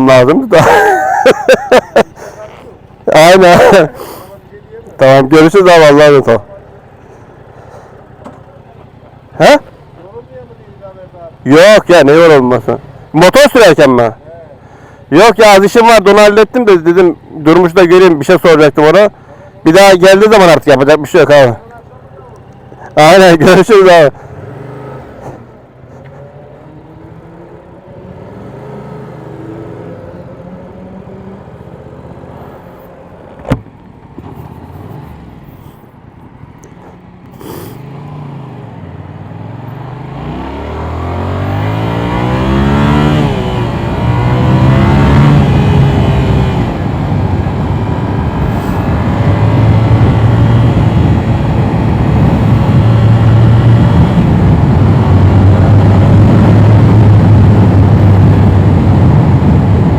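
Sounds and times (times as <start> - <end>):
motorcycle engine revving: 24.2 - 25.6, 26.6 - 32.9, 34.2 - 35.8, 37.4 - 59.9
wind rush: 44.9 - 59.9.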